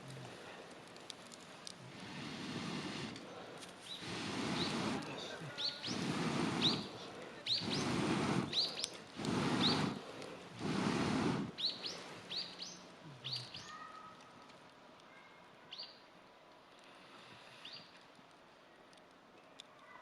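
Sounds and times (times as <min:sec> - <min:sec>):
bursts of rushing noise: 0:04.0 - 0:11.6
small bird chirping: 0:05.5 - 0:10.0, 0:11.5 - 0:14.1.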